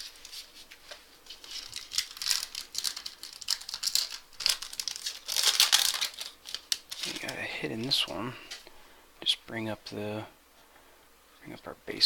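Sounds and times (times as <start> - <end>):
plastic wrapper being torn and crinkled: 1.2 - 8.1.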